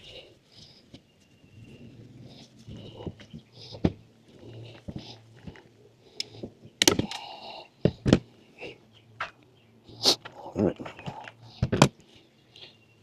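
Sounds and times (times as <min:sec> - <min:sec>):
rattling clatter of clicks: 0:06.2 - 0:07.3.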